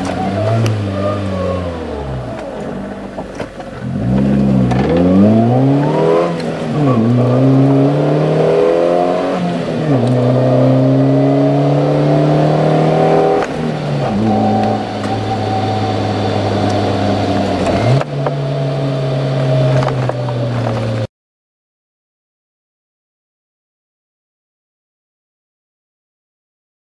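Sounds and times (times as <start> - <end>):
car engine exhaust accelerating: 0.0 - 21.1.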